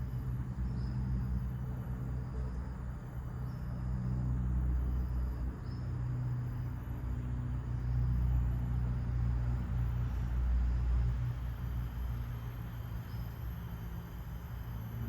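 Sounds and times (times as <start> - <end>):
faint bird chirps: 12.8 - 15.0.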